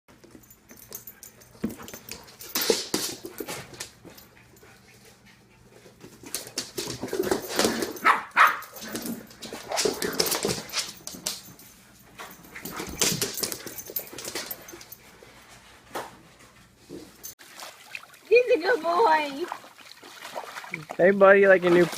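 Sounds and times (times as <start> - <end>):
dog barking: 8.0 - 8.7.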